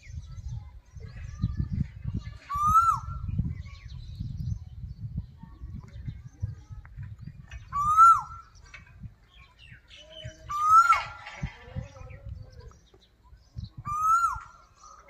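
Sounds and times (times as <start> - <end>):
bird loud rising and falling call: 2.5 - 4.2, 7.6 - 15.0.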